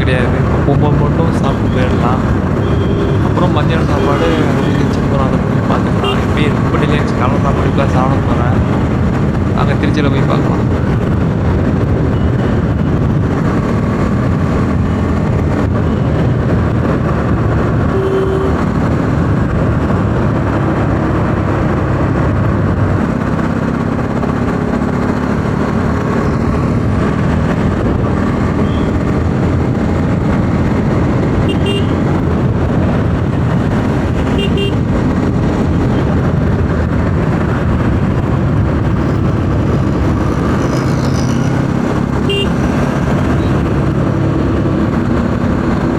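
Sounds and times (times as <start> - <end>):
wind rush on microphone: 0.0 - 45.9
short horn beeps: 2.6 - 3.3, 17.9 - 18.6, 31.5 - 32.0, 34.4 - 34.8, 42.3 - 42.5
motorcycle engine running: 10.5 - 45.9.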